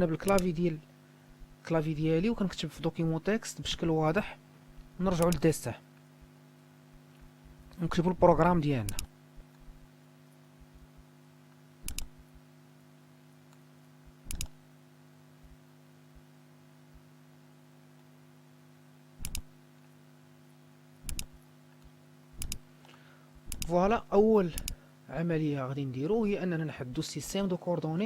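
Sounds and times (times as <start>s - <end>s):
steady low hum: 0.0s - 28.0s
computer mouse double clicks: 0.2s - 0.5s, 8.9s - 9.1s, 11.8s - 12.2s, 14.2s - 14.6s, 19.2s - 19.5s, 21.0s - 21.4s, 22.4s - 22.6s, 23.4s - 23.7s, 24.6s - 24.8s.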